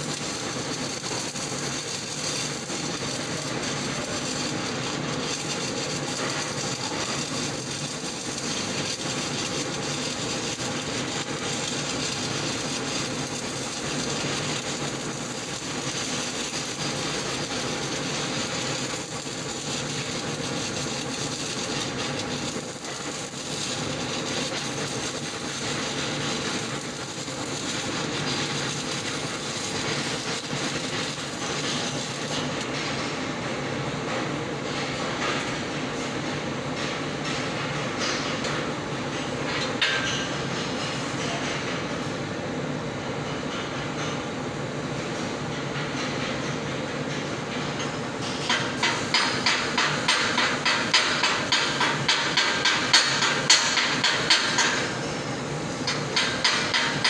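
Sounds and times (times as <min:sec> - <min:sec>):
welding arc crackling: 0:00.0 - 0:32.8, 0:48.1 - 0:57.0.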